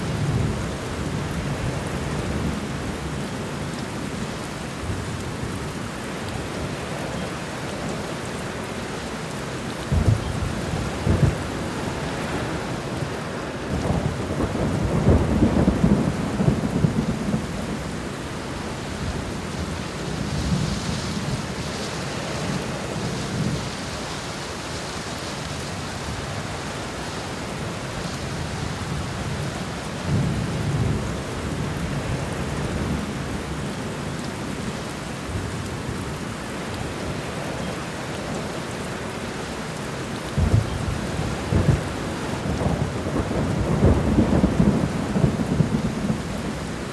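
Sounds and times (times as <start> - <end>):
steady rain: 0.0 - 46.9
low rolling thunder: 9.8 - 23.8, 28.2 - 33.7, 40.3 - 46.9.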